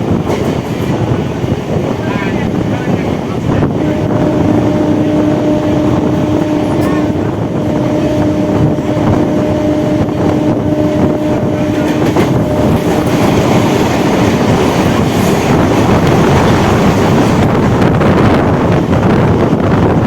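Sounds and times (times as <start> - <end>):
train wheels rumbling on rail: 0.0 - 20.0
steady hum: 3.5 - 17.4.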